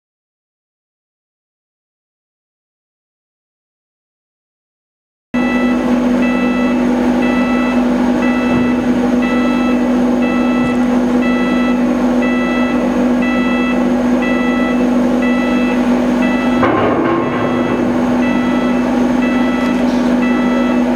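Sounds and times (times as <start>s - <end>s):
electronic warning beeper: 5.4s - 20.9s
low machinery hum: 5.4s - 20.9s.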